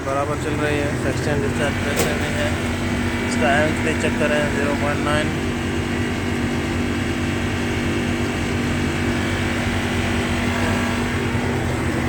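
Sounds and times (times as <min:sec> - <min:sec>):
air conditioner unit humming: 0:00.0 - 0:12.0
fan rushing air: 0:00.0 - 0:12.0.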